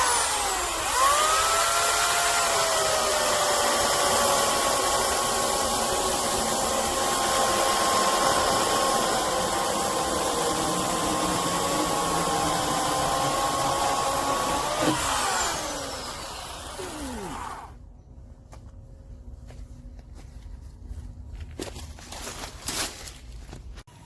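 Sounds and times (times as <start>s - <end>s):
electric chainsaw motor whining: 0.0s - 17.8s.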